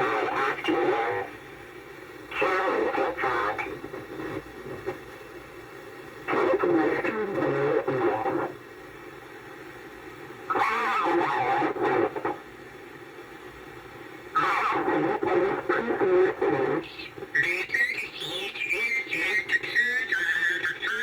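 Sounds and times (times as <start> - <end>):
radio broadcast voice: 0.0 - 1.4, 2.3 - 5.0, 6.3 - 8.6, 10.5 - 12.4, 14.3 - 21.0
radio hiss: 0.0 - 21.0.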